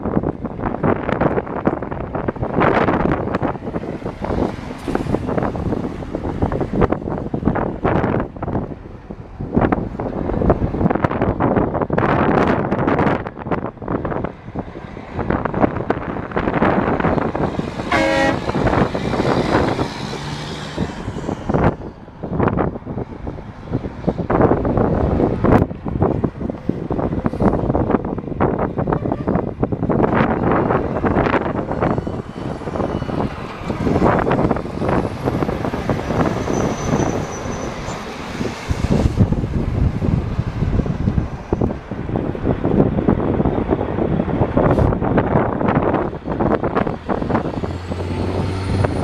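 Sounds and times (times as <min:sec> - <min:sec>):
heavy trucks rumbling past: 0:00.0 - 0:49.0
wind buffeting microphone: 0:00.0 - 0:49.0
vehicle horn toot: 0:17.9 - 0:18.6, 0:28.9 - 0:29.4.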